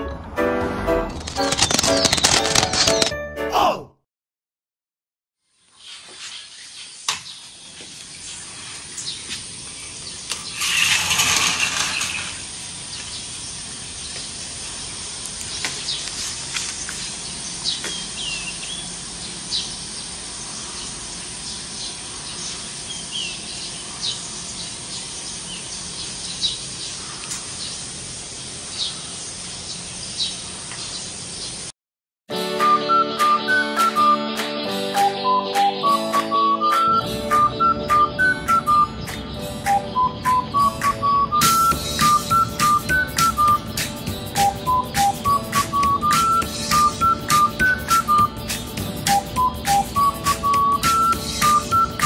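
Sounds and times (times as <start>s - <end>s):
steady hiss: 5.8s - 31.7s.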